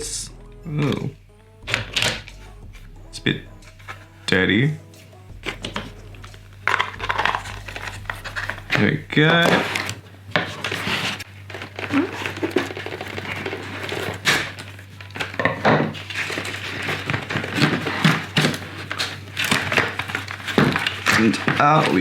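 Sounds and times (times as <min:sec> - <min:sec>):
plastic packaging crinkling: 0:04.8 - 0:22.0
plastic parts knocking: 0:05.3 - 0:22.0.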